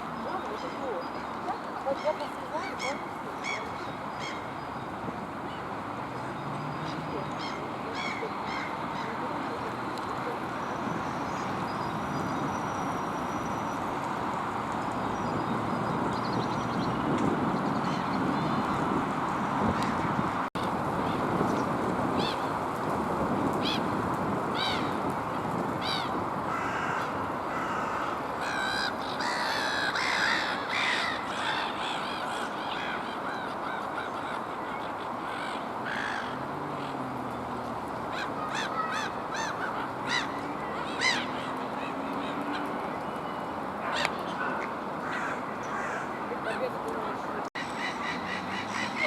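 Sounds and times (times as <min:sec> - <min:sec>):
gulls calling: 0:38.0 - 0:49.0.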